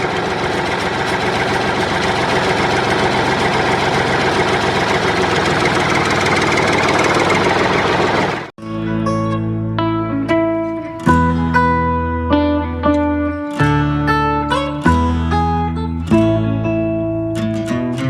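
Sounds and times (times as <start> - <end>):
small diesel engine idling: 0.0 - 8.6.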